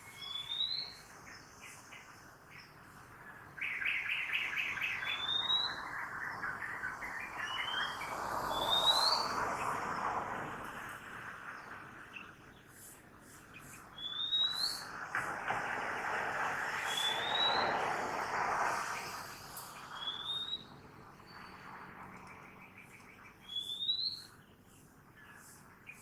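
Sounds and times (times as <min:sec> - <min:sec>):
city traffic hiss: 0:01.0 - 0:14.1, 0:14.7 - 0:26.0
birds chirping and whistling: 0:03.6 - 0:06.8, 0:07.4 - 0:09.4, 0:14.0 - 0:14.9, 0:16.8 - 0:17.7, 0:19.9 - 0:21.6, 0:22.7 - 0:24.4.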